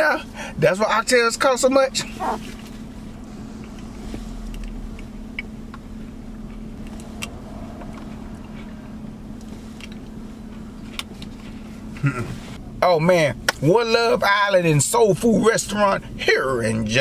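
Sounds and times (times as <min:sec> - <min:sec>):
truck engine idling: 0:00.2 - 0:13.6.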